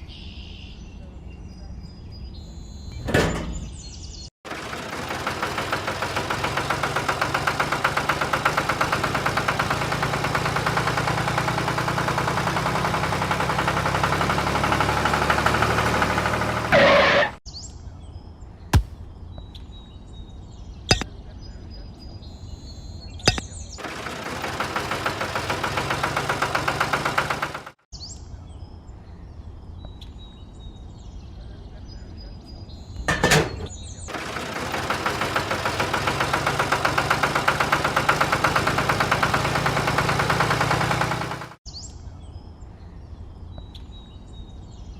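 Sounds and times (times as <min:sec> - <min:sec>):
small engine puttering: 0:04.5 - 0:17.4, 0:23.3 - 0:27.8, 0:33.1 - 0:41.6.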